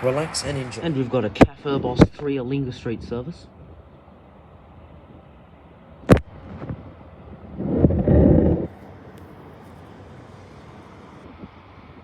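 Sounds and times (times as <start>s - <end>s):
loud low rumble: 0.0s - 2.2s
street noise: 0.0s - 12.0s.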